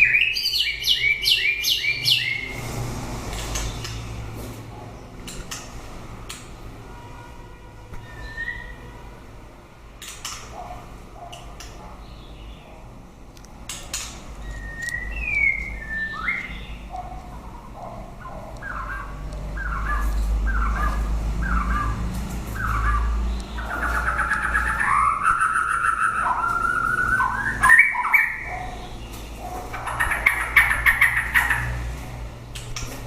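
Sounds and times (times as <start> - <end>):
bird singing: 0.0 - 2.5, 8.0 - 8.9, 14.4 - 31.8.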